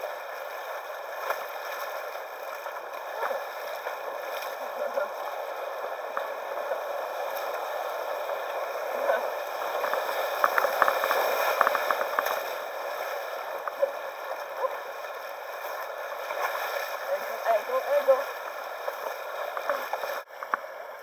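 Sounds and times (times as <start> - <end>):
river water rushing: 0.0 - 21.0
water splashing: 0.0 - 21.0.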